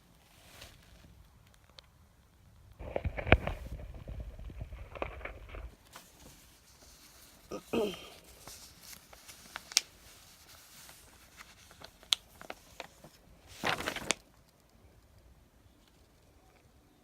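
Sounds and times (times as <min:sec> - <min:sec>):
packaging rustle: 0:02.8 - 0:14.5.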